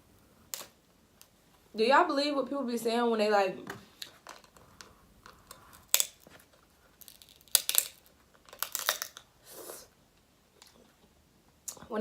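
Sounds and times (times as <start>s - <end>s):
shells cracking: 4.0s - 9.3s.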